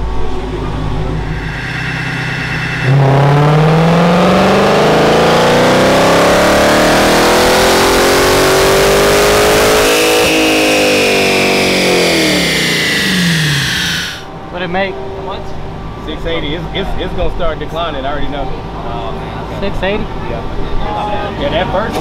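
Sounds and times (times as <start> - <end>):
supercharger whine: 0.0 - 14.4
car engine revving: 0.8 - 14.3.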